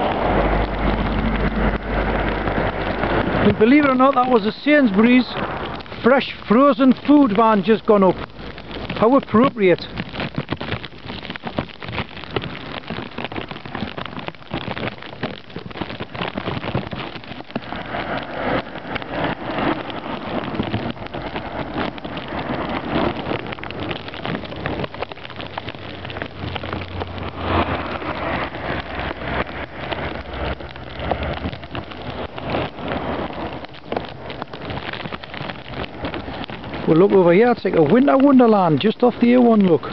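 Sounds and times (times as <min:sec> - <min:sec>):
driving snow hissing: 0:00.0 - 0:10.0
low engine rumble: 0:00.0 - 0:39.9
vehicles swishing on slushy road: 0:00.0 - 0:39.9.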